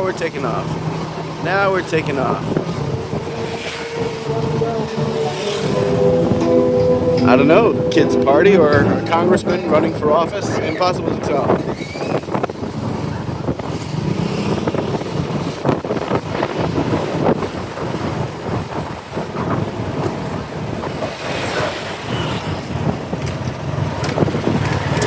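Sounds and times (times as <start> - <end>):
motorcycle engine: 0.0 - 18.0
road noise: 0.0 - 25.0
wind buffeting microphone: 0.0 - 25.0.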